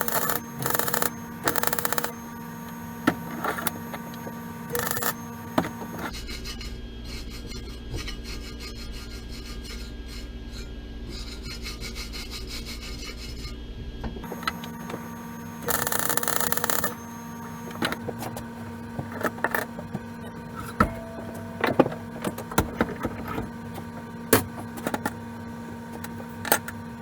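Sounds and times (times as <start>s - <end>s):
clicks: 0.0s - 6.1s, 14.2s - 25.1s
welding arc crackling: 0.0s - 6.1s, 14.2s - 18.6s
steady low hum: 0.0s - 27.0s.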